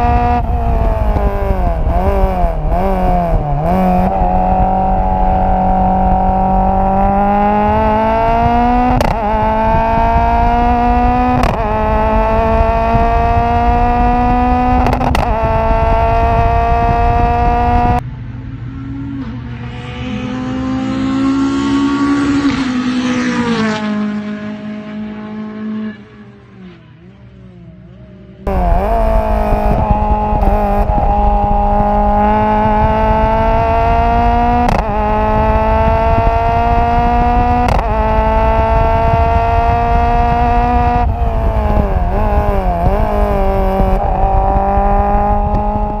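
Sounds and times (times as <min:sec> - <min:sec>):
exhaust cracks: 0:00.0 - 0:18.0, 0:28.5 - 0:46.0
racing car engine revving: 0:00.0 - 0:18.0, 0:18.7 - 0:46.0.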